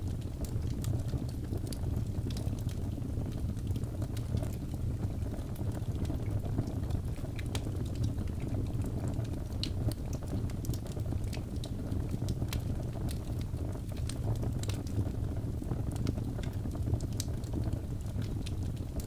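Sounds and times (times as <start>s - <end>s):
low rumble of flames: 0.0s - 19.0s
logs crackling and snapping: 9.6s - 11.7s.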